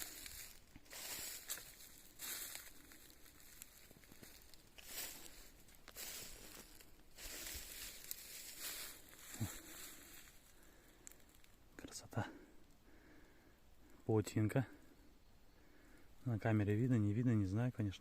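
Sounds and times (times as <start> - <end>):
footsteps rustling through leaves: 0.0 - 11.3.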